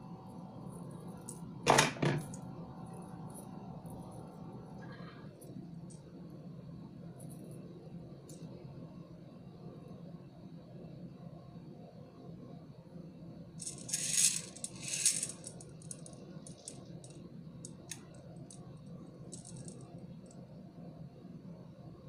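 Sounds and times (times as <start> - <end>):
plastic beads rattling: 13.6 - 18.0, 19.3 - 19.8
beads clicking: 13.6 - 18.6, 19.3 - 19.8.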